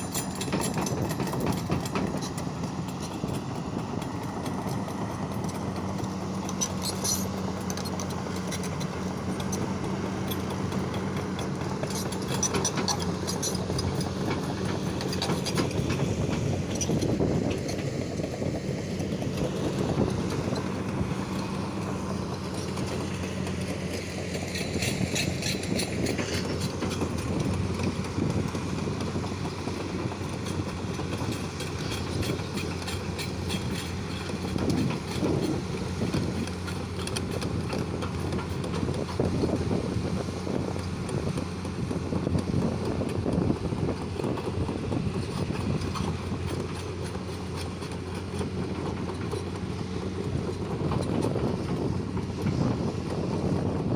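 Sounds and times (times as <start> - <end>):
metallic clatter: 0.0 - 3.4, 6.4 - 9.7
excavator diesel engine running: 0.0 - 53.9.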